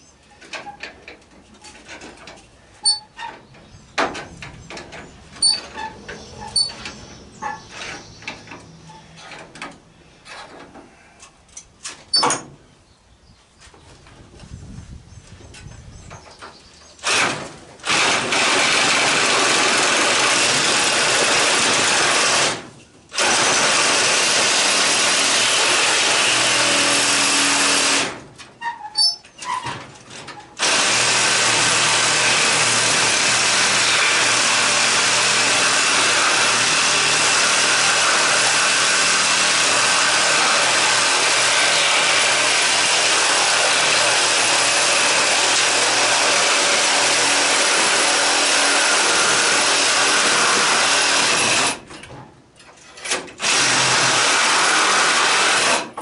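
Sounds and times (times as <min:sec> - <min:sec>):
reciprocating saw cutting metal: 0:02.8 - 0:03.2, 0:05.4 - 0:06.8, 0:30.6 - 0:51.8.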